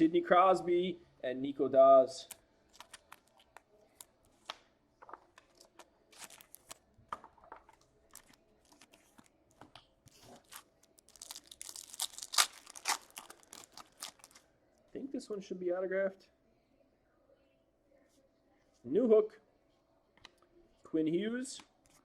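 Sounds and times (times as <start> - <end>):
foil wrapper crinkling: 6.1 - 6.8, 10.1 - 14.4
foil wrapper tearing: 10.4 - 14.4.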